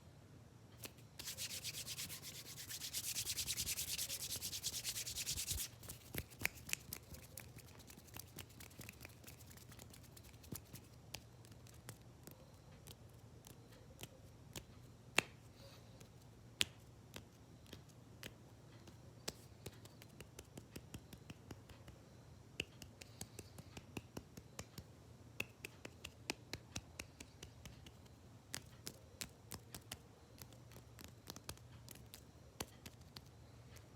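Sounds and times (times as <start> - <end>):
hands rubbing together: 0.8 - 11.0
clicks and taps with fingers: 5.6 - 15.4, 16.0 - 22.0, 22.6 - 33.9.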